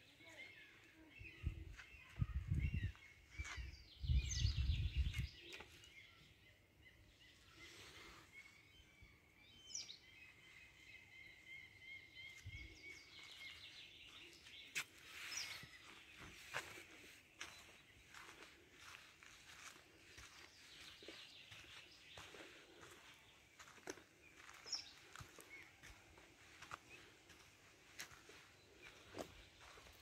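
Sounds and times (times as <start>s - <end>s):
songbirds singing: 0.0s - 30.0s.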